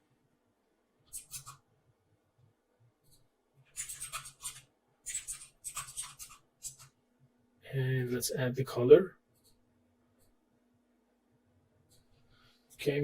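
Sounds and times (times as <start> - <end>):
computer mouse scraping on desk: 1.1 - 1.6, 3.1 - 6.9.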